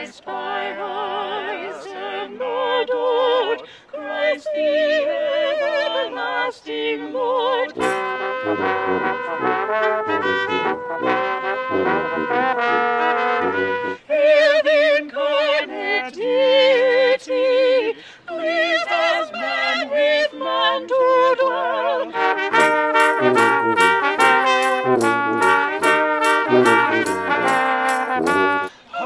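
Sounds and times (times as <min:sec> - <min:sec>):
brass ensemble playing a carol: 0:07.7 - 0:14.7, 0:22.0 - 0:28.7
crisp regular beat: 0:22.5 - 0:28.7.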